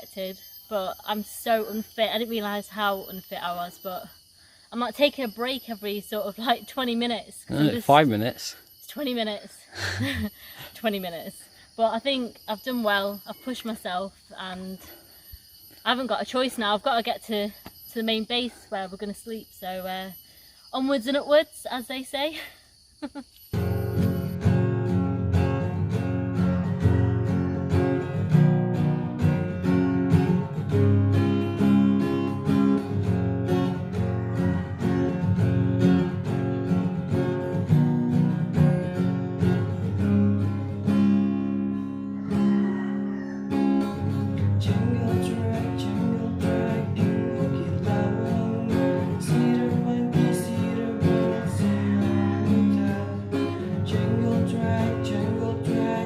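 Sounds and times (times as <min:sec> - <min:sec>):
acoustic guitar strummed and plucked: 0:05.4 - 0:08.3, 0:23.5 - 0:56.0.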